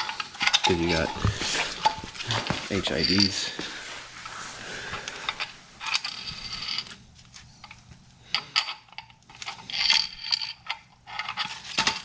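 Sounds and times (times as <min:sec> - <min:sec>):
small metal parts clinking: 0:00.0 - 0:03.5, 0:07.6 - 0:12.0.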